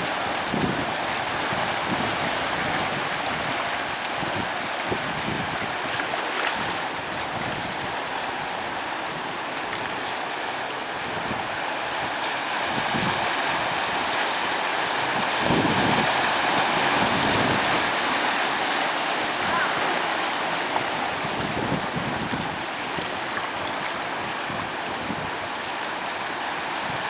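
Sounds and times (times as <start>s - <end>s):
small waves breaking on sand: 0.0s - 27.0s.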